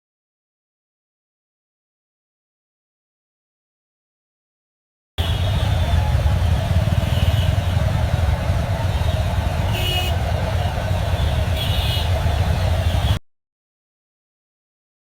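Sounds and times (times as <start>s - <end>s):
traffic engines rumbling: 5.2s - 13.2s.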